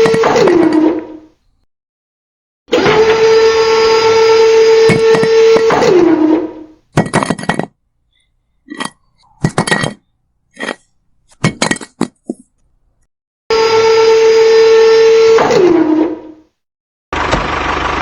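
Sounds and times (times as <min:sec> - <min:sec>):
small electric motor whining: 0:02.7 - 0:06.8.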